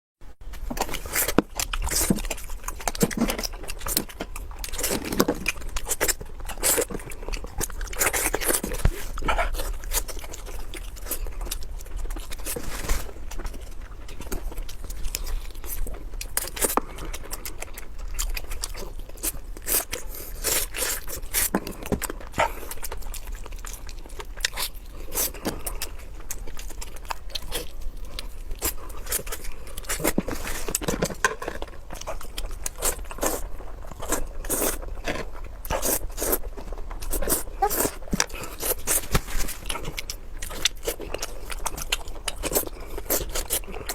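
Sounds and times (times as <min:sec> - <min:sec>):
chewing and crunching food: 0:00.3 - 0:43.9.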